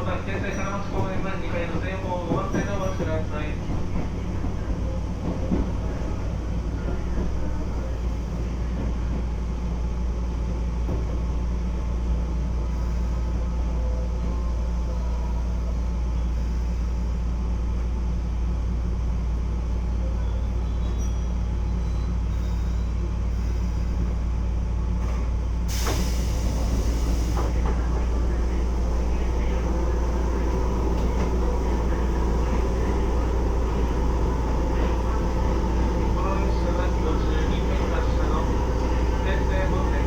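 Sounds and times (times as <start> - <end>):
electric train low hum: 0.0 - 40.0
air hiss burst: 25.7 - 27.6
train motor tones: 25.7 - 40.0.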